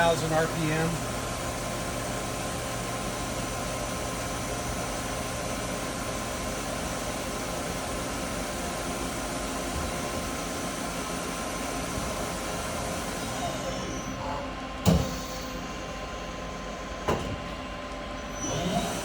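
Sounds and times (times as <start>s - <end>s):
lathe machine hum: 0.0s - 14.8s.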